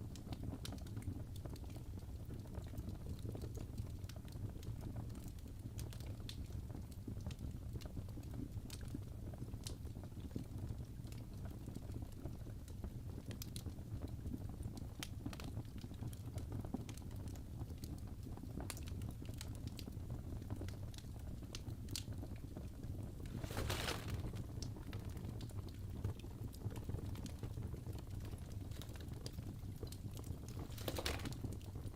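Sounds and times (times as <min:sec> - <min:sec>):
fireplace fire crackling: 0:00.0 - 0:31.9.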